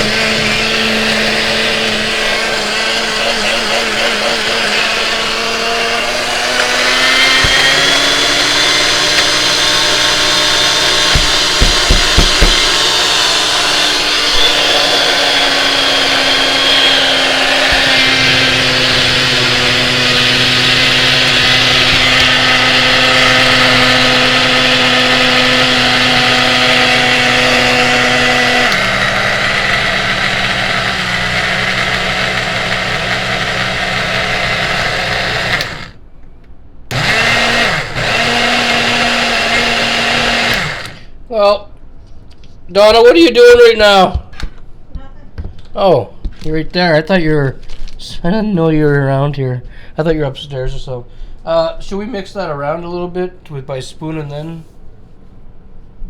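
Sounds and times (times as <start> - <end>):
blender motor whining: 0.0 - 36.0, 36.9 - 41.2.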